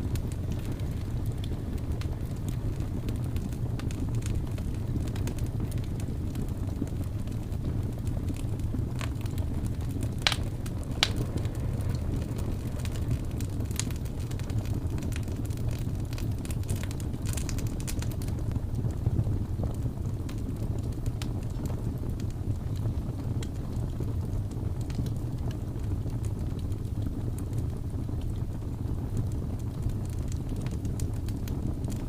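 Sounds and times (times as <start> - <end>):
wood fire crackling and popping: 0.0 - 32.0
blizzard wind rushing: 9.4 - 14.7.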